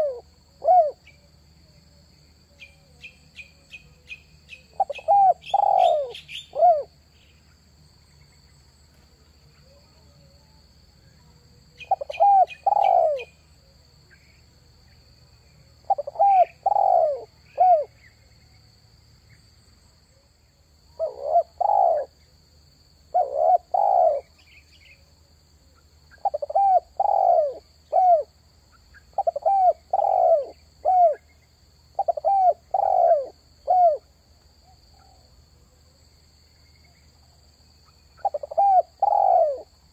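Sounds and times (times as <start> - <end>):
dove cooing: 0.0 - 1.3, 2.6 - 6.9, 11.7 - 13.8, 15.8 - 18.0, 21.0 - 22.2, 23.1 - 24.4, 26.2 - 28.3, 29.1 - 31.2, 32.0 - 34.1, 38.2 - 39.7
small bird chirping: 2.5 - 8.4, 11.7 - 13.5, 15.8 - 18.6, 26.1 - 34.0, 37.8 - 39.7.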